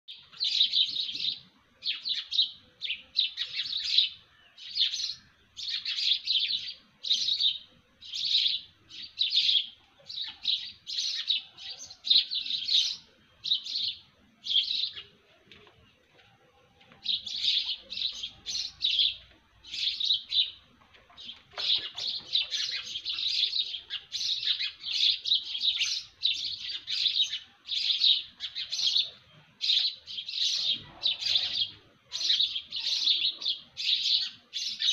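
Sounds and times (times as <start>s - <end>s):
birds chirping: 0.1s - 34.9s.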